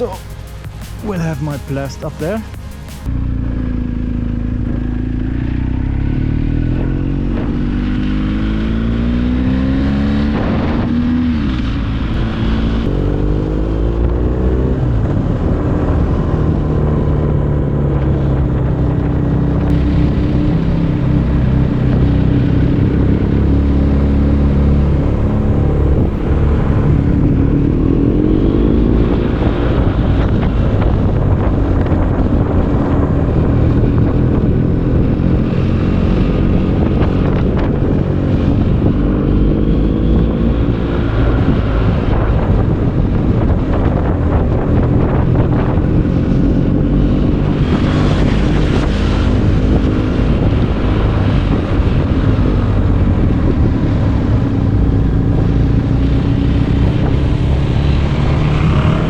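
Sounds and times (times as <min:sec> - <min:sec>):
motorcycle engine accelerating: 0:00.0 - 0:59.0
wind on microphone: 0:06.1 - 0:59.0.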